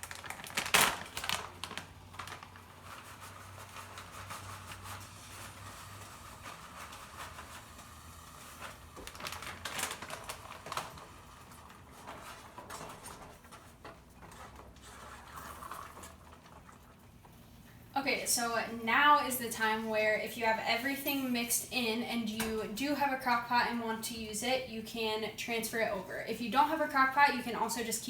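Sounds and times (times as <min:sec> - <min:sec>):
spoon stirring thick dip in pot: 0:11.0 - 0:17.3.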